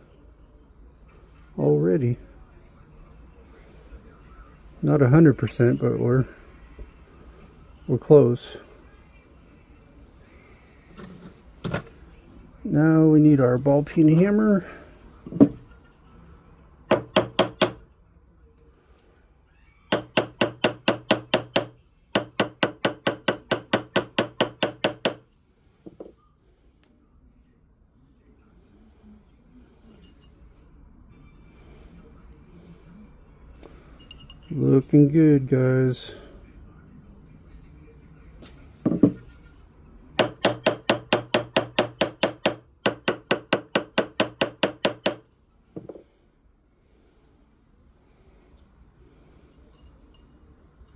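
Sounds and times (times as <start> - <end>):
hammer tapping metal ring: 16.9 - 17.8, 19.9 - 25.2, 40.2 - 45.2.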